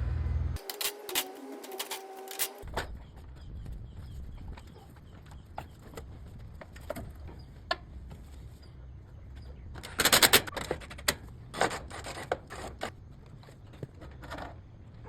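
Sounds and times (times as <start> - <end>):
tools and metal parts clinking: 0.6 - 2.9, 9.3 - 14.6.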